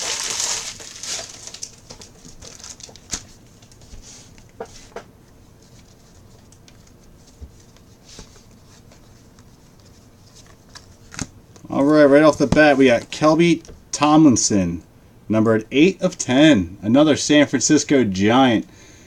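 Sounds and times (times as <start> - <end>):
foil wrapper crinkling: 0.0 - 3.8
trading cards rustling: 0.0 - 4.4.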